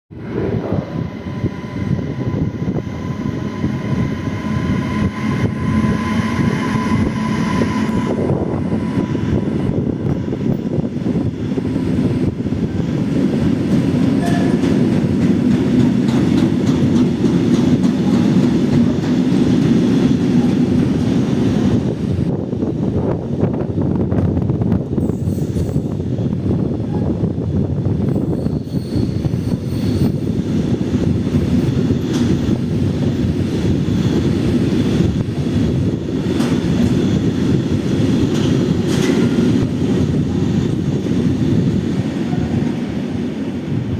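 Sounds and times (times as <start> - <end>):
electric locomotive whine: 0.1 - 43.9.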